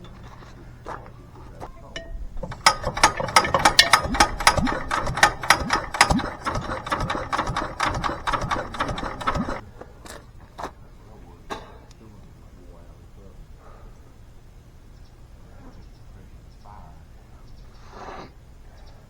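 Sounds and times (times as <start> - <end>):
stationary engine clattering: 0.0 - 12.0
sharp metallic clicks: 1.4 - 10.8.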